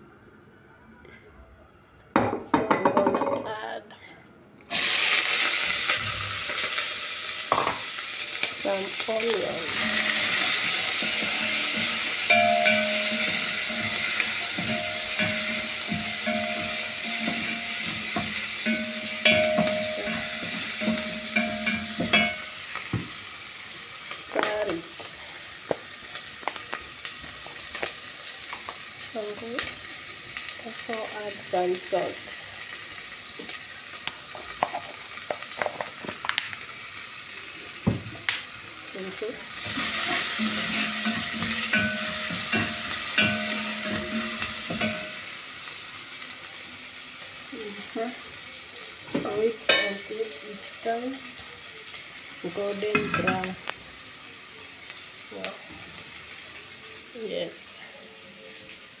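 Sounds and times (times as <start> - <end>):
onions sizzling in oil: 4.7 - 59.0
pot ringing: 9.7 - 22.8, 39.7 - 45.4
spoon knocking against pot: 11.0 - 23.1, 40.1 - 45.2.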